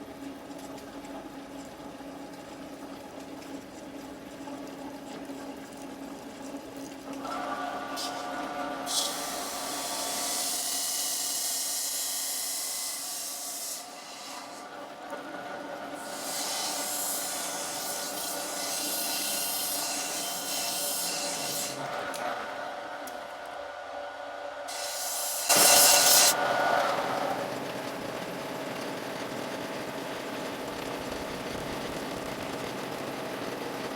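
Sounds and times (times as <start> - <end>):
metal lathe whining: 15.4 - 23.2, 24.6 - 27.0
cutting hiss: 24.7 - 26.4.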